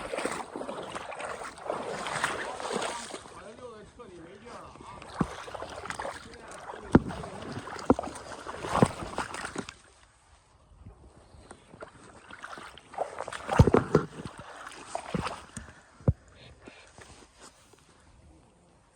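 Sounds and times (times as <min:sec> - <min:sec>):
water sloshing and splashing: 0:00.0 - 0:10.2, 0:11.2 - 0:16.3.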